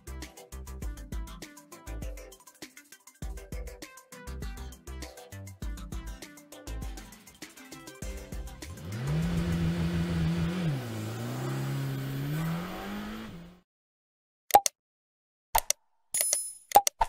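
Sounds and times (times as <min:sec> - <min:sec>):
car engine revving: 0:08.6 - 0:13.6.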